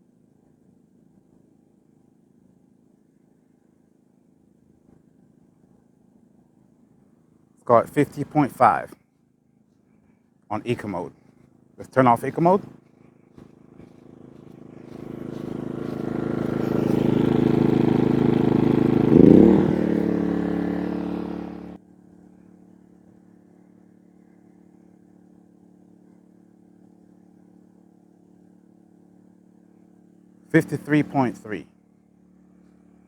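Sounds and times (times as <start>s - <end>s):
generator engine running: 7.7s - 8.9s, 10.5s - 21.8s, 28.4s - 33.0s.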